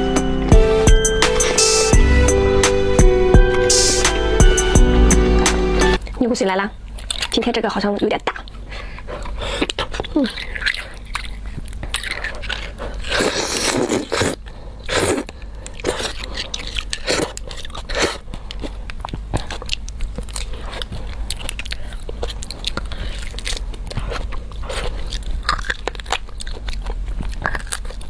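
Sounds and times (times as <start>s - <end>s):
chewing bone marrow: 8.2s - 28.0s.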